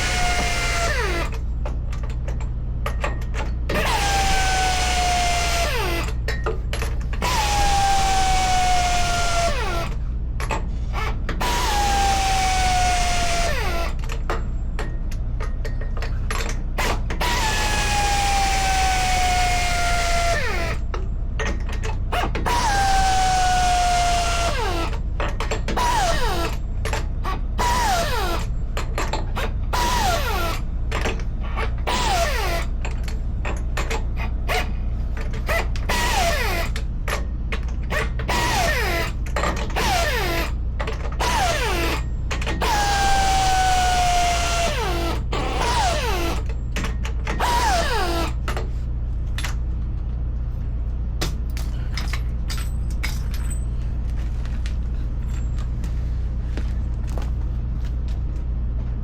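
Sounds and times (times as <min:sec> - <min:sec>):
steady low hum: 0:00.0 - 0:59.0
impact wrench spinning: 0:07.2 - 0:10.0, 0:11.0 - 0:14.0, 0:16.8 - 0:20.9, 0:22.2 - 0:25.0, 0:25.8 - 0:26.6, 0:27.6 - 0:28.5, 0:29.7 - 0:30.6, 0:31.6 - 0:32.7, 0:35.5 - 0:36.8, 0:41.2 - 0:46.5, 0:47.4 - 0:48.4.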